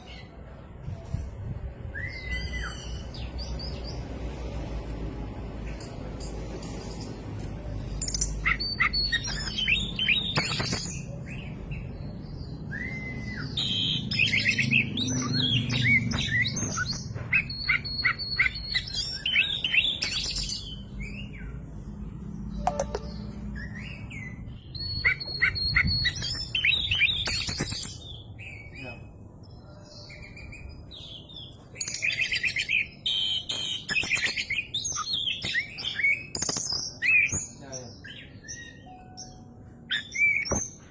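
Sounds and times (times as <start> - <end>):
magpie-robin singing whistles: 1.8 - 3.2, 12.5 - 21.4, 23.6 - 28.8, 31.8 - 37.4, 38.0 - 40.9.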